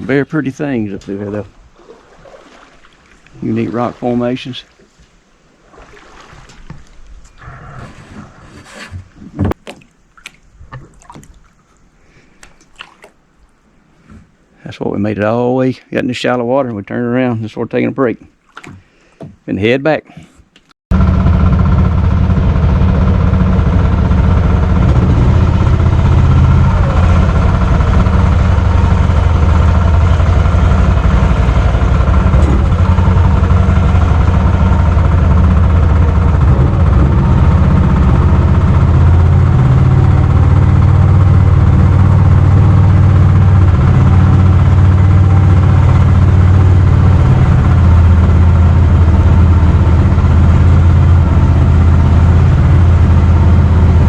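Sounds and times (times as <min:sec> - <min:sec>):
small gas engine droning: 0:20.9 - 0:54.0.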